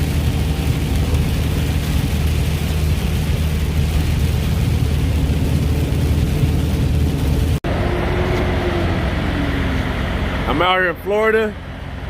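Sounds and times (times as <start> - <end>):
truck engine droning: 0.0 - 12.0
tyres hissing on wet road: 0.0 - 12.0.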